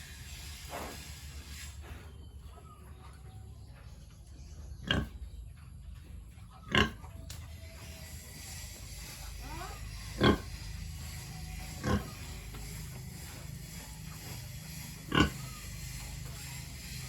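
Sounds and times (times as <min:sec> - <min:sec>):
steady low hum: 0:00.0 - 0:17.0
pigs grunting: 0:04.7 - 0:05.6, 0:06.3 - 0:07.3, 0:08.0 - 0:17.0.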